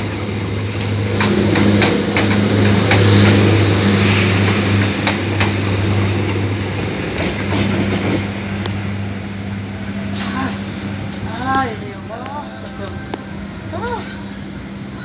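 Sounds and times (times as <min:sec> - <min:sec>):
sharp clacks of wheels: 0:00.0 - 0:08.8
diesel locomotive engine drone: 0:00.0 - 0:15.0
train wheels rumbling on rails: 0:00.0 - 0:15.0.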